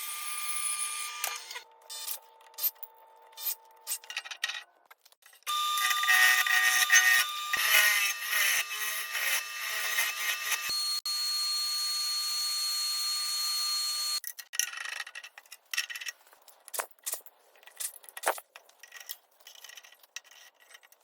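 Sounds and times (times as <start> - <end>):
small power tool whining: 5.5 - 14.2.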